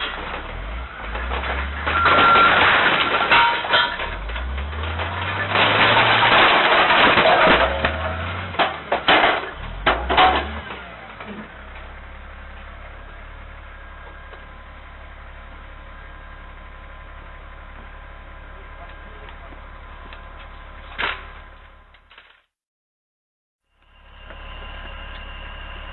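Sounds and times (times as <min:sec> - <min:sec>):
sharp bangs and knocks: 0:00.0 - 0:10.8.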